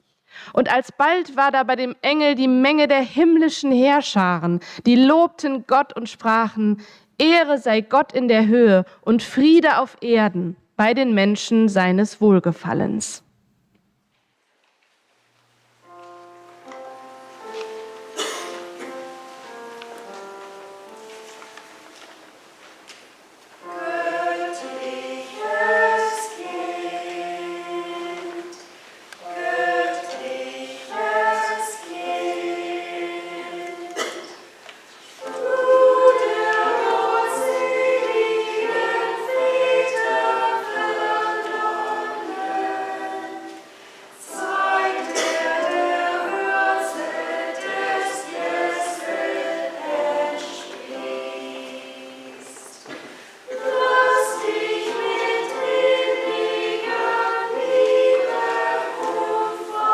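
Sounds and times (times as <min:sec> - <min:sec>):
church choir singing: 0:15.8 - 0:22.5, 0:23.5 - 0:59.9.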